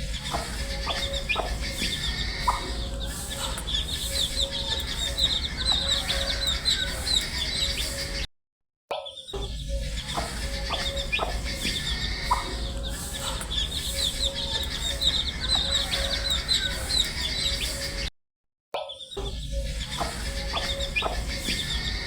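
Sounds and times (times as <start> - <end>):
baby chicks peeping: 0.0 - 8.2, 9.8 - 18.1, 19.5 - 22.0
steady low hum: 0.0 - 8.2, 9.6 - 18.1.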